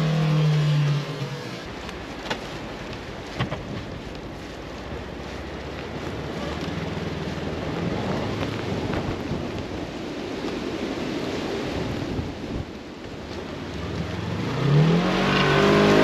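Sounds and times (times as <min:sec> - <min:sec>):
vehicle engine running: 0:00.0 - 0:09.2
wind noise on microphone: 0:00.0 - 0:16.0.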